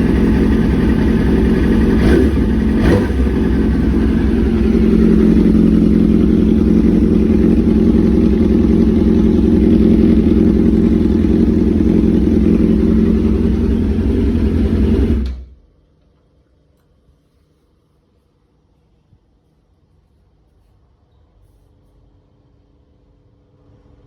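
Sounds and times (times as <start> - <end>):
motorcycle engine running loud: 0.0 - 15.4.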